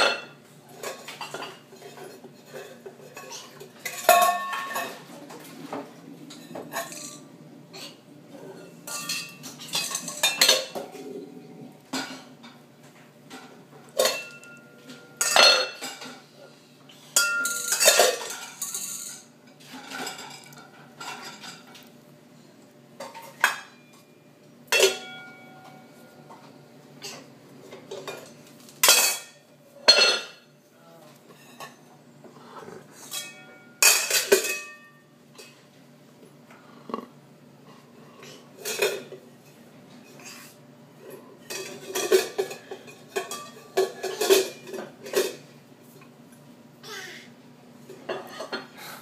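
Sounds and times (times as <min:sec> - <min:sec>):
metal pots and pans clanking: 0:00.0 - 0:08.0, 0:08.6 - 0:11.1, 0:13.3 - 0:16.3, 0:17.2 - 0:21.8, 0:23.0 - 0:24.0, 0:24.7 - 0:26.4, 0:27.0 - 0:30.5, 0:33.0 - 0:35.6, 0:38.2 - 0:39.2, 0:41.4 - 0:45.4.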